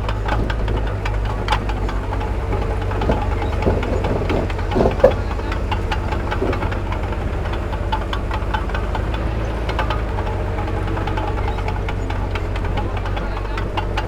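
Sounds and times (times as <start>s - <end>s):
diesel machinery rumbling: 0.0s - 14.0s
metal clanks and knocks: 0.0s - 14.0s.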